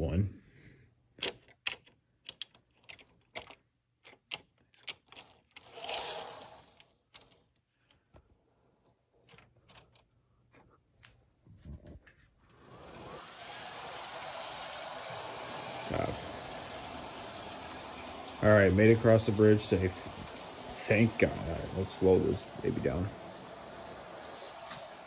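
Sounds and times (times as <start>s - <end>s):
model train wheels clicking: 4.8s - 7.4s, 12.5s - 25.0s
steady rushing noise: 15.9s - 24.6s.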